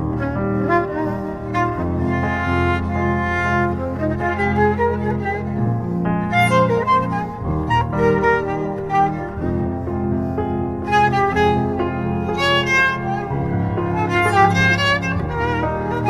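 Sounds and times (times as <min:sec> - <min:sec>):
bowed fiddle slow melody: 0:00.0 - 0:16.0
held low string notes: 0:00.0 - 0:16.0.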